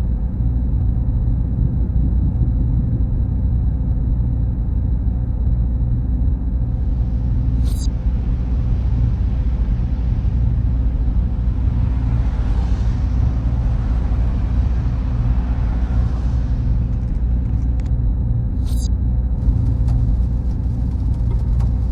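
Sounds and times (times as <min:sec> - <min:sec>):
server machines humming: 0:05.0 - 0:21.9.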